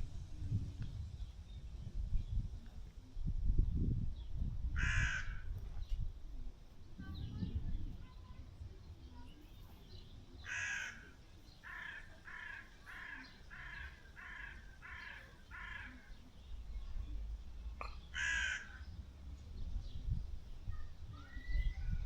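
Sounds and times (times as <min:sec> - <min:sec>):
crow cawing: 0:04.8 - 0:05.5, 0:10.4 - 0:16.1, 0:18.1 - 0:18.9.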